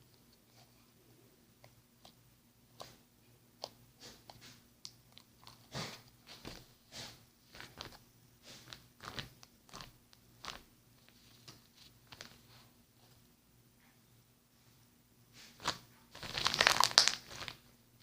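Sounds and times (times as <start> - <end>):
hands squishing slime: 3.6 - 10.7, 15.5 - 17.6.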